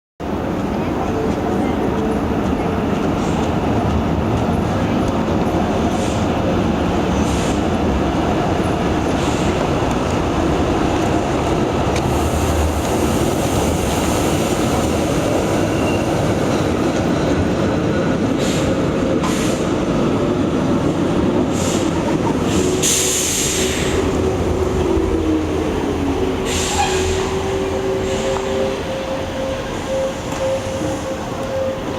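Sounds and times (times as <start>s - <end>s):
tram rumbling on rails: 0.2s - 31.9s
high-pitched rail squeals: 15.2s - 16.7s, 22.6s - 31.9s.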